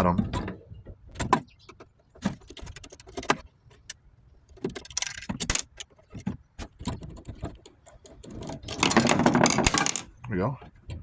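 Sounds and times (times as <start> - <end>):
metal parts clinking: 4.7 - 5.8, 8.3 - 10.2.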